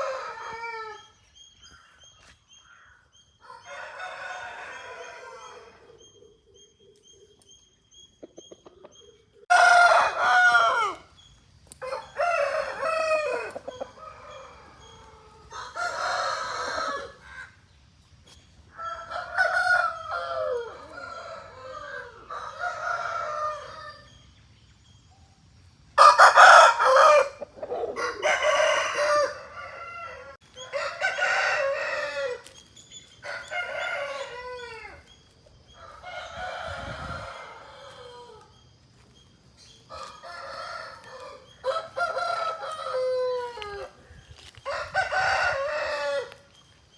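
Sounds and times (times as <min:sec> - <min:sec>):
roosters crowing: 0:00.0 - 0:01.2, 0:03.4 - 0:06.0, 0:09.5 - 0:17.6, 0:18.7 - 0:24.2, 0:26.0 - 0:38.8, 0:39.9 - 0:46.6.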